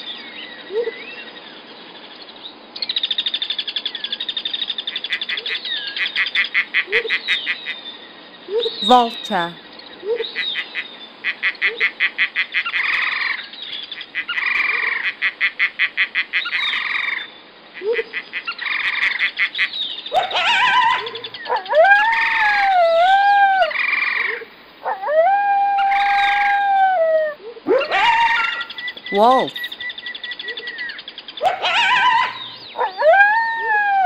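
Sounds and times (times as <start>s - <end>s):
wolf howling: 20.2s - 28.7s, 31.4s - 34.0s.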